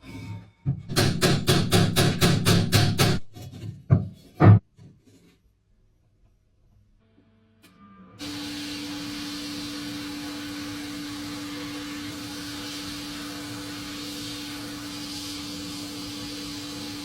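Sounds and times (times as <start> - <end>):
electric power tool motor running: 8.2 - 17.0.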